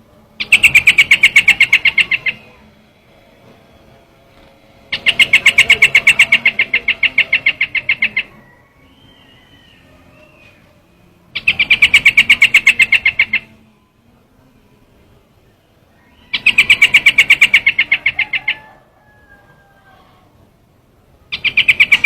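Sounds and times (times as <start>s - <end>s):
bird call fast rattle: 0.4s - 2.6s, 4.9s - 8.3s, 16.3s - 18.7s, 21.3s - 22.0s
faint wavering whistle: 4.9s - 14.8s.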